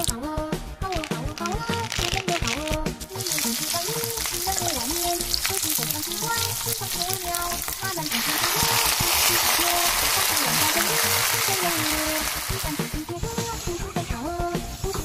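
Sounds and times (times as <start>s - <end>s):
background music with melody: 0.0s - 15.0s
pancakes sizzling in hot oil: 3.1s - 13.2s.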